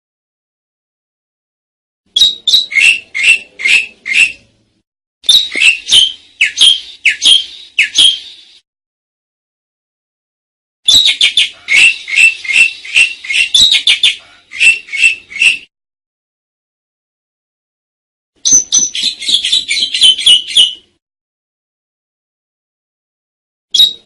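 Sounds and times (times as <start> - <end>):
starling chattering song: 2.1 - 4.5, 5.3 - 8.6, 10.9 - 15.7, 18.4 - 20.9.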